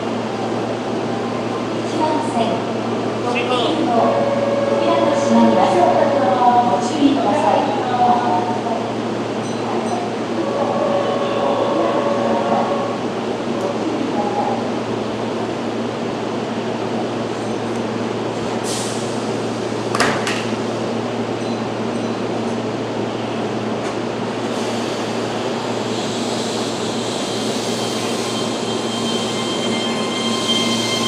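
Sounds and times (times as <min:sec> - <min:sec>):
train equipment hum: 0:00.0 - 0:16.3.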